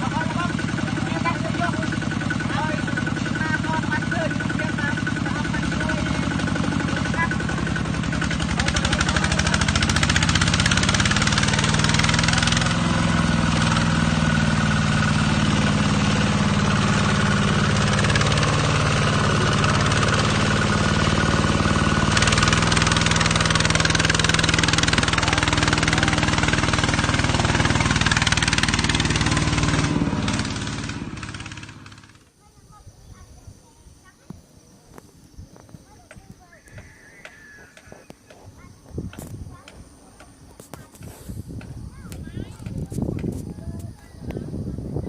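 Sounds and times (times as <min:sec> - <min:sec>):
engine running steadily: 0:00.0 - 0:32.4.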